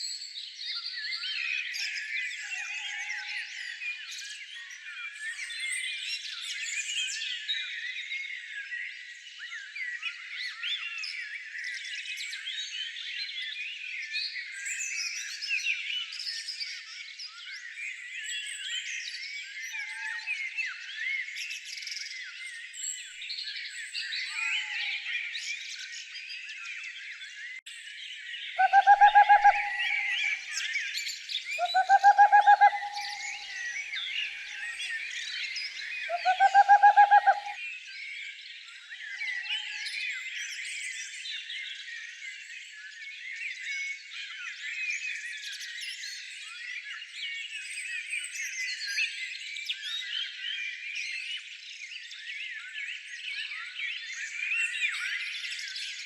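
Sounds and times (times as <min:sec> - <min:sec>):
low rapid bird trill: 0:28.6 - 0:30.4, 0:31.6 - 0:33.7, 0:36.1 - 0:37.6
songbirds chirping: 0:28.6 - 0:30.7, 0:31.6 - 0:37.6.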